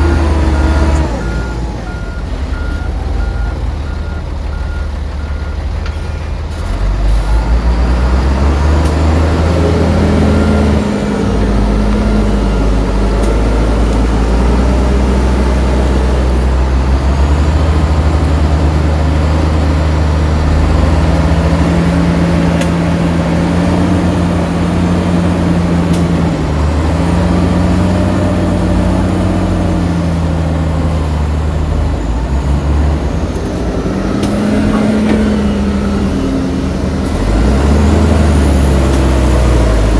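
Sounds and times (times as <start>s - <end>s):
reversing alarm beeping: 0.0s - 5.7s, 9.0s - 16.4s
heavy diesel engine running under load: 0.0s - 39.9s.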